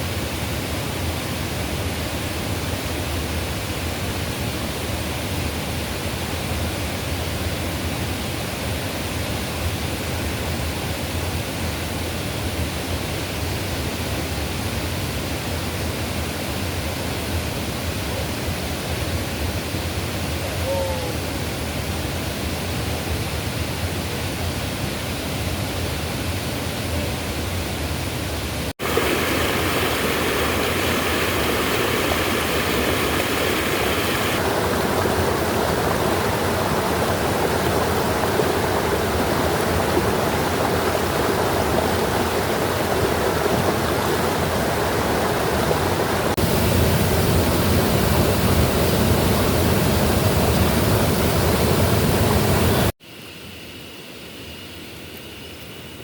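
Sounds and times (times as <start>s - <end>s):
stream rushing: 28.7s - 52.9s.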